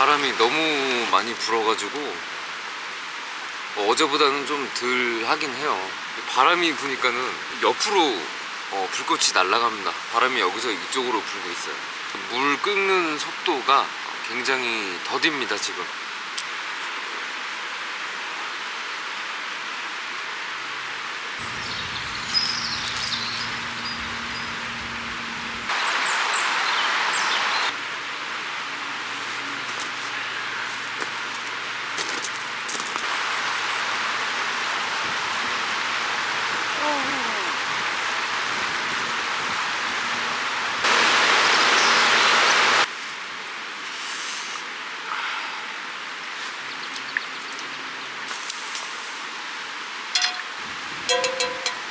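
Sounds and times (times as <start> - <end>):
creek rushing: 0.0 - 15.0, 21.4 - 28.6, 33.0 - 42.9
high chirps: 50.2 - 51.9.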